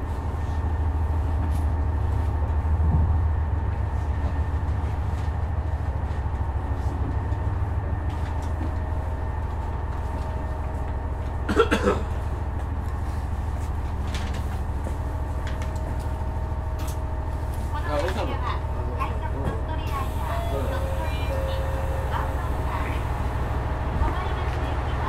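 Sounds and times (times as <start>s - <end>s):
diesel railcar droning: 0.0s - 25.0s
person coughing: 11.5s - 12.2s.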